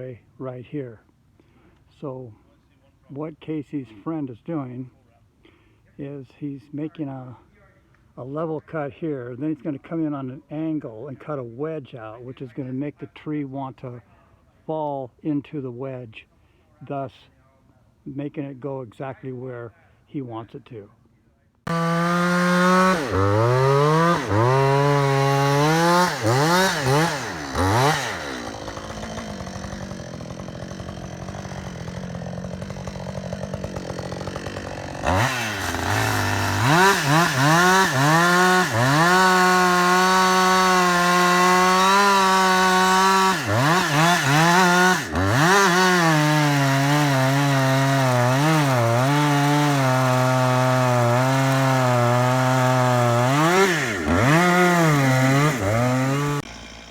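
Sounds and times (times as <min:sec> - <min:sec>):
chainsaw cutting tree trunk: 0:21.7 - 0:56.9.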